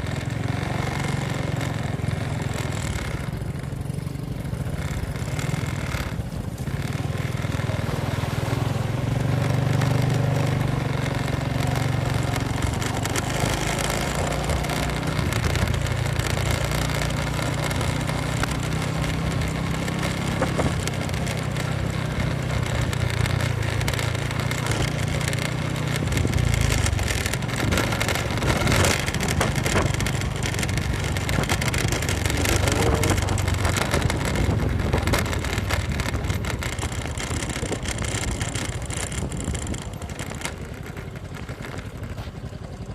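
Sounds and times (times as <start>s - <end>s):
motorcycle engine revving: 0.0s - 42.9s
wind noise on microphone: 25.9s - 42.2s.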